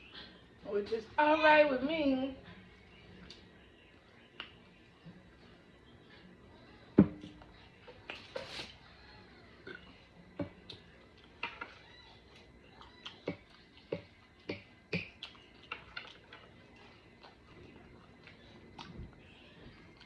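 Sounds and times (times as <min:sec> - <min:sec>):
mouth smacking while chewing: 0:10.6 - 0:20.0.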